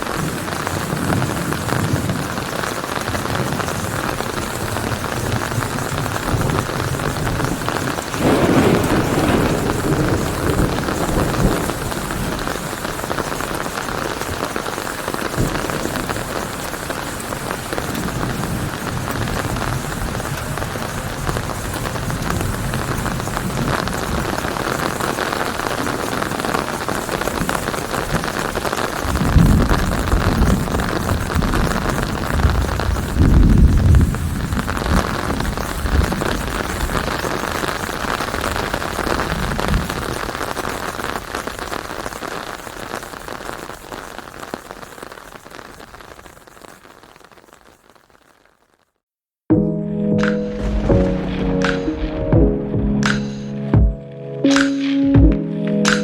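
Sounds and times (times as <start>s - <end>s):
thunder rumble: 0.0s - 40.8s, 49.5s - 54.0s
heavy rain on leaves: 0.0s - 49.0s, 50.5s - 52.2s.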